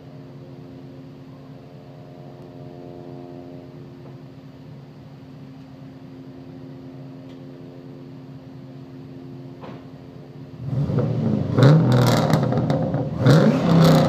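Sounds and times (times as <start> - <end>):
car engine idling and revving: 5.6 - 14.0.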